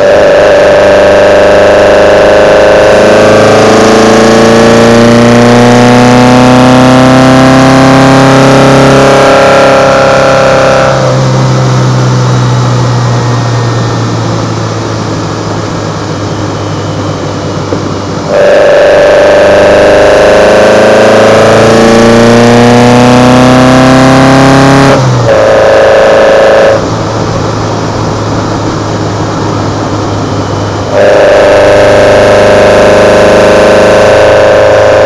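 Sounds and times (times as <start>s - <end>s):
car engine revving: 0.0s - 35.0s
carburetor intake sound: 8.2s - 23.8s, 24.7s - 35.0s.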